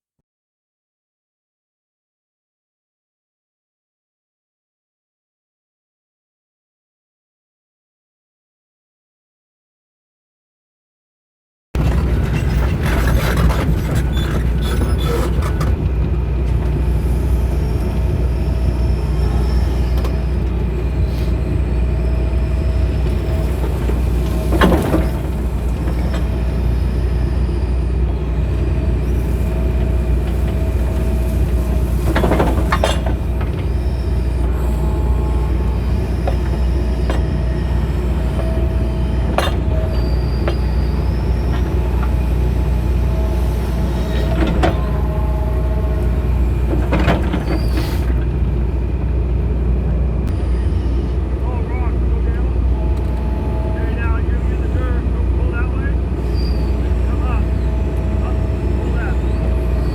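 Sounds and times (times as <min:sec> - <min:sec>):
excavator diesel engine running: 0:11.8 - 0:59.9
faint whine: 0:50.2 - 0:59.9.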